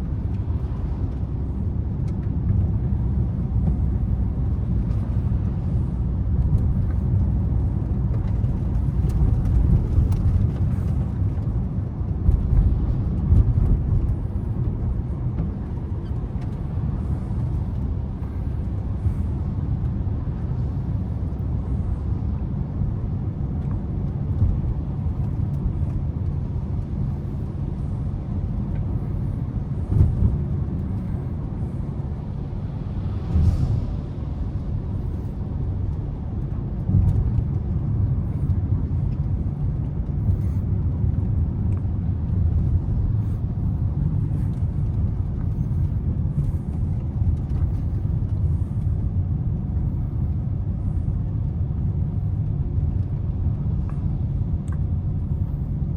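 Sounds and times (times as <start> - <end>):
car engine and road noise: 0.0 - 55.9.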